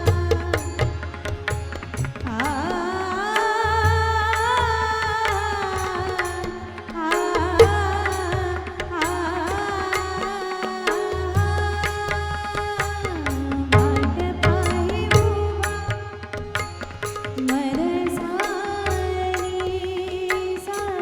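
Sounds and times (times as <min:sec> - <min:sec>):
woman singing: 0:00.0 - 0:01.2, 0:02.1 - 0:21.0
hand drums: 0:00.0 - 0:03.0, 0:03.6 - 0:21.0.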